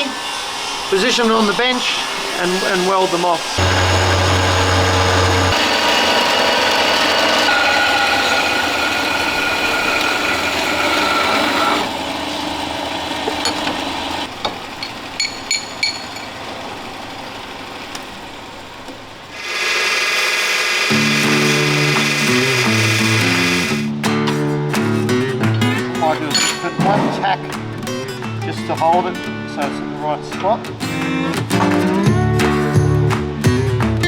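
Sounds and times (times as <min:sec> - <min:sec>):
power saw cutting steel tube: 0:00.0 - 0:14.3, 0:19.4 - 0:23.9
sharp metal clinks: 0:14.8 - 0:16.4.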